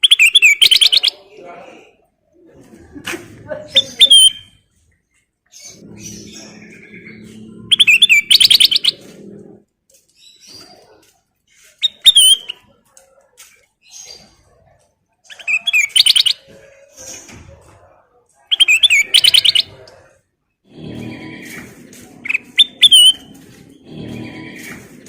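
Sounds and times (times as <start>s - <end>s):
soft bird calls: 3.8s - 25.0s
bulbul singing rapid notes: 5.7s - 9.0s, 22.2s - 24.7s.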